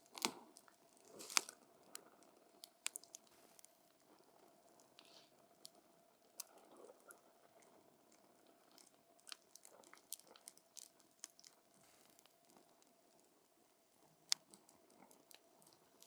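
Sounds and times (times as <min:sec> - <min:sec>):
campfire crackling and popping: 0:00.0 - 0:03.7
faint low fire hiss: 0:00.0 - 0:16.0.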